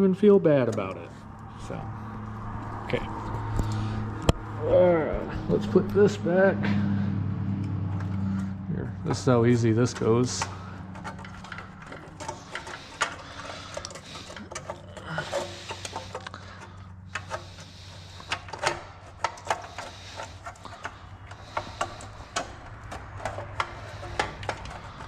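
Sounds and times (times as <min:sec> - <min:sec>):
tractor engine idling: 0:00.0 - 0:25.0
metallic clinks and knocks: 0:09.9 - 0:25.0.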